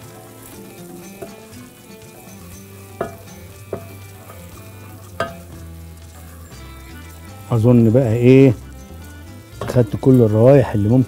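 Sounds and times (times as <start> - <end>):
spatula scraping a pot: 0.0 - 10.4
lentils sizzling in a pot: 0.0 - 11.0
spatula knocking against pot: 1.2 - 1.5, 2.9 - 5.6.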